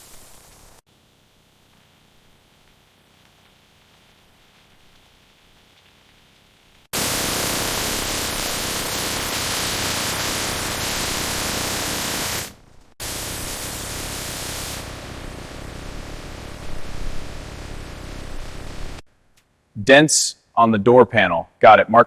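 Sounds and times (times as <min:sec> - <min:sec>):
loud rushing hiss: 0:07.0 - 0:19.0.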